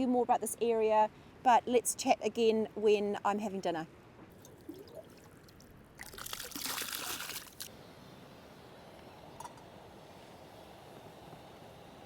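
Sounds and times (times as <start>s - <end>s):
water pouring: 4.4s - 7.7s.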